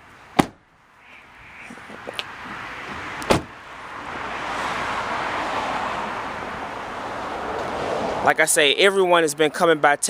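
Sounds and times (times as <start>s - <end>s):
car door clunk: 2.1s - 3.5s.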